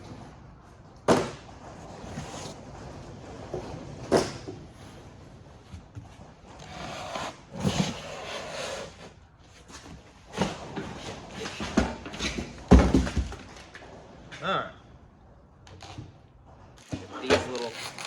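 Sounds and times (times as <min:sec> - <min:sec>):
cardboard and packing rustling: 0:01.1 - 0:02.8, 0:16.8 - 0:18.0.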